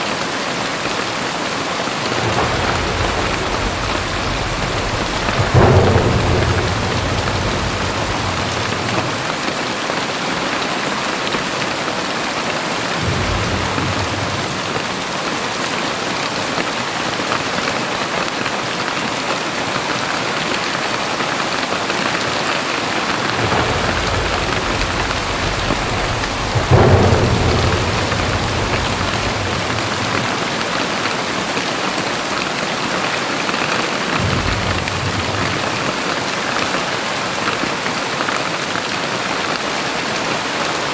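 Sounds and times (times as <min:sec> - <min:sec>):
heavy rain: 0:00.0 - 0:40.9
thunder rumbling: 0:01.9 - 0:10.1, 0:12.8 - 0:16.0, 0:21.9 - 0:32.0, 0:34.0 - 0:37.4.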